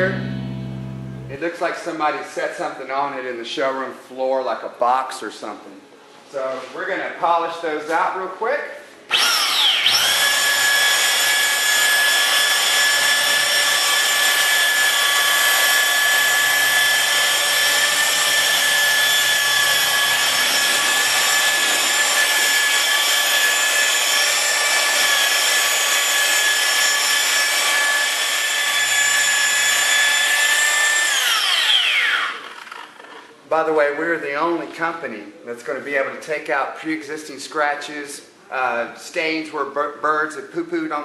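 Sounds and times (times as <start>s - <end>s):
electric polisher whining: 9.1s - 33.2s.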